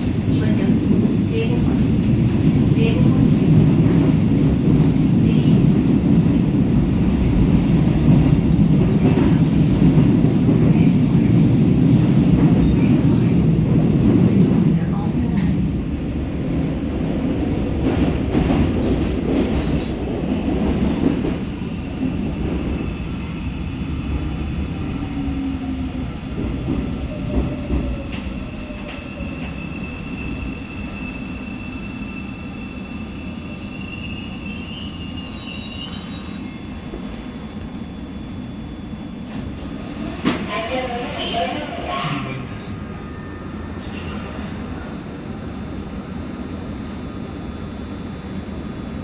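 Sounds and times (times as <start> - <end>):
train rumbling: 0.0 - 49.0
high brake squeal: 29.6 - 37.4.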